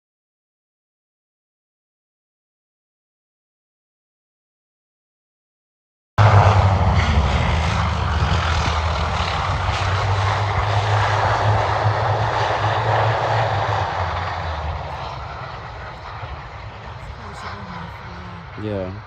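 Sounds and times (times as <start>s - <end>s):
aircraft engines droning: 6.2s - 19.0s.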